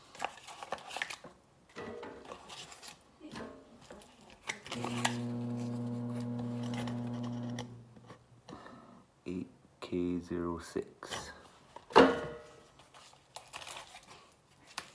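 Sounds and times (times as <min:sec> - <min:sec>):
packing material rustling: 0:00.0 - 0:01.3, 0:12.6 - 0:14.9.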